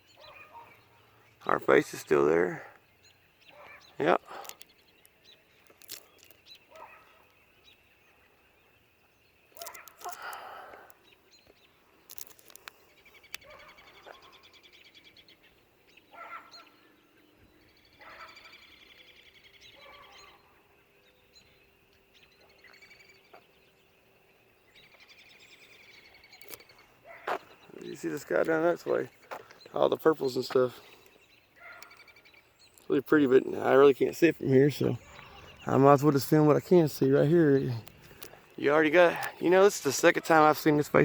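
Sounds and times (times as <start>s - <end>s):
birds calling: 0.0s - 41.0s
sharp clicks: 9.6s - 11.0s, 26.4s - 26.7s.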